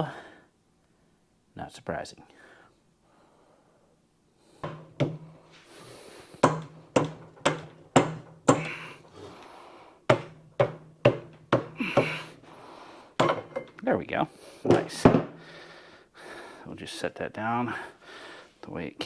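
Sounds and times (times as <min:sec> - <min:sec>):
hammer striking metal hub: 0:06.4 - 0:09.1, 0:10.1 - 0:12.2, 0:13.2 - 0:13.8.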